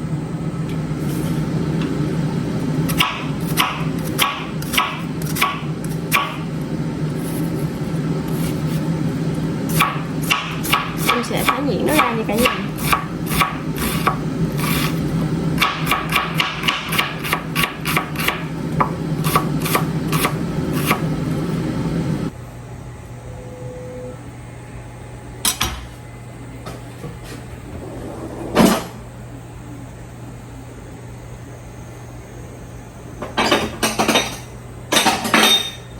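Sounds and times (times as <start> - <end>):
low steady hum: 0.0 - 35.9
knife chopping on cutting board: 2.9 - 6.4, 9.7 - 14.9, 15.6 - 21.0.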